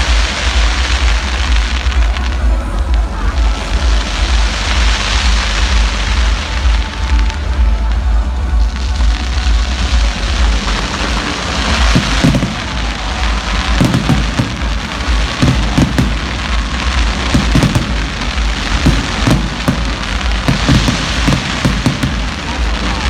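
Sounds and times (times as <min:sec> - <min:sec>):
fireworks bangs and crackles: 0:00.0 - 0:23.0
steady low rumble: 0:00.0 - 0:23.0.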